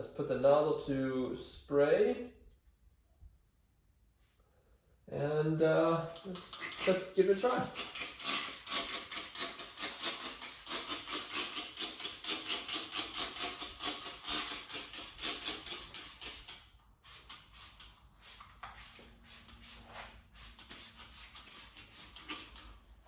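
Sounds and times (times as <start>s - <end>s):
spray bottle spritzing: 6.0s - 22.8s
faint wiping strokes: 11.5s - 23.0s.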